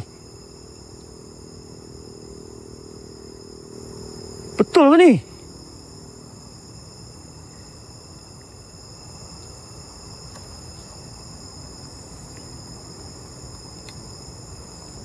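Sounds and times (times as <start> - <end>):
constant hiss: 0.0 - 15.0
insects chirring: 0.0 - 15.0
faint ticks: 10.2 - 10.6, 13.7 - 14.1.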